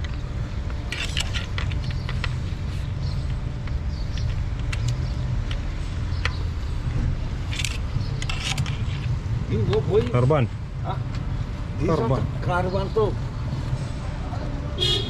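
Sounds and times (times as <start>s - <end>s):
low mechanical rumble: 0.0s - 11.8s
metallic clicks and taps: 3.3s - 6.4s.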